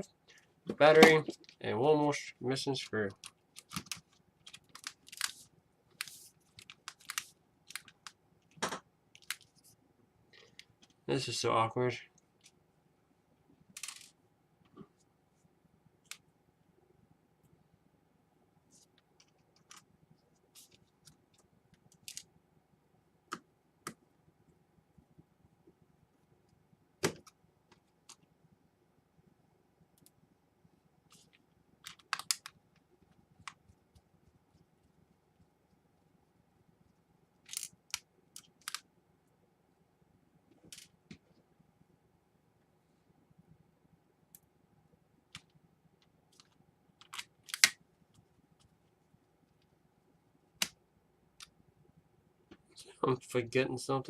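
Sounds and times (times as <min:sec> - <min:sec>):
small parts clicking and scraping: 0:13.8 - 0:14.2, 0:20.5 - 0:22.3, 0:37.4 - 0:38.8
laptop parts clicking: 0:31.1 - 0:32.6, 0:37.4 - 0:38.8, 0:46.3 - 0:47.8.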